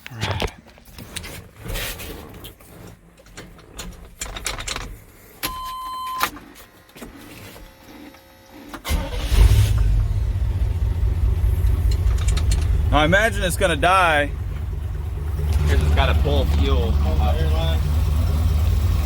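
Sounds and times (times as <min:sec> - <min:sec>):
engine starting and running: 0:06.3 - 0:19.0.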